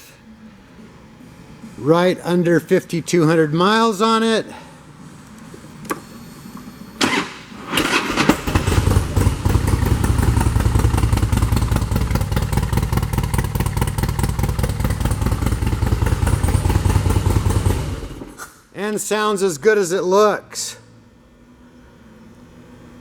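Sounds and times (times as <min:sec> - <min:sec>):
motorcycle engine cranking: 0:07.0 - 0:18.4
motorcycle engine idling: 0:08.1 - 0:18.4.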